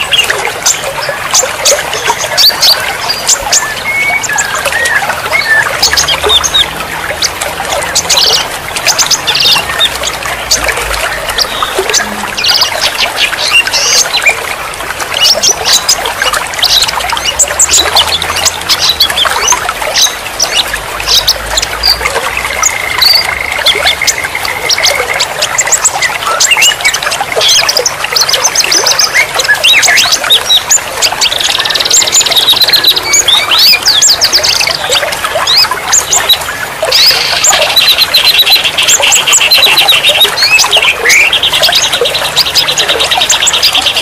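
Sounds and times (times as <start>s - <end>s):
songbirds chirping and trilling: 0.0s - 44.0s.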